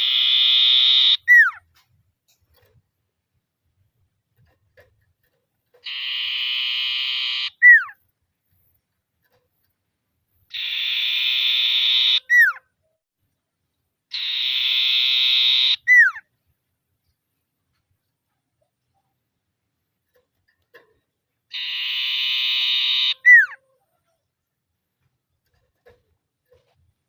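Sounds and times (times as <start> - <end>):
bird buzzing trill and whistle: 0.0 - 1.5, 5.8 - 7.9, 10.5 - 12.5, 14.2 - 16.1, 21.5 - 23.6.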